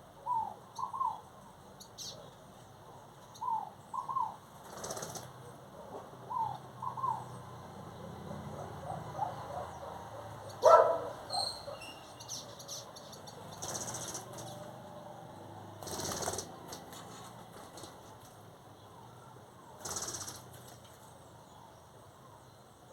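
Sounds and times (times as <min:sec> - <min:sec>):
birds chirping: 0:00.0 - 0:22.9
harsh bird call: 0:10.5 - 0:12.9.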